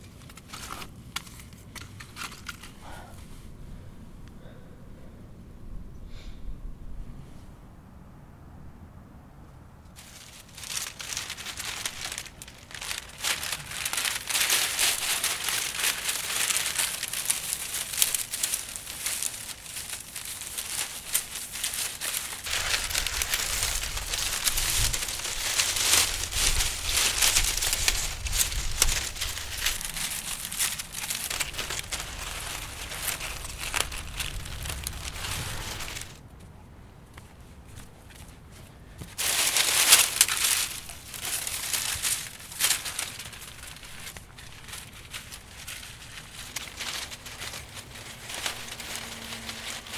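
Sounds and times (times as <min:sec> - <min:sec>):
dry leaves crinkling and rustling: 0:00.0 - 0:03.4, 0:10.0 - 0:36.6, 0:37.2 - 0:49.9
low rumble: 0:13.7 - 0:36.3.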